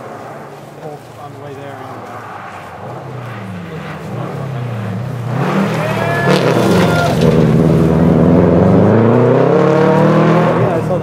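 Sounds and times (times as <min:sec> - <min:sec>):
rally car engine at high revs: 0:02.8 - 0:11.0.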